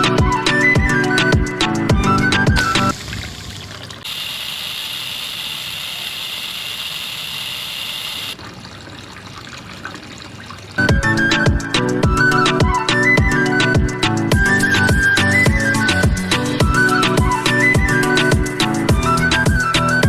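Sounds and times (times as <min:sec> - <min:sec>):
background music: 0:00.0 - 0:03.0, 0:10.8 - 0:20.0
water pouring: 0:02.6 - 0:07.2, 0:08.2 - 0:10.9.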